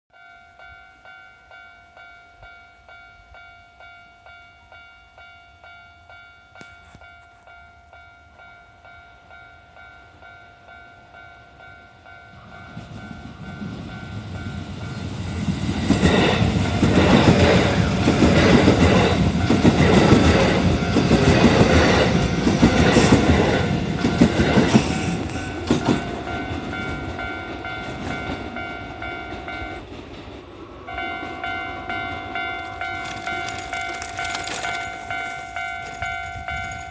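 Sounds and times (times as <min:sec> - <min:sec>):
level crossing warning bell: 0:00.1 - 0:30.0, 0:30.8 - 0:36.9
train wheels clattering over joints: 0:31.1 - 0:36.9.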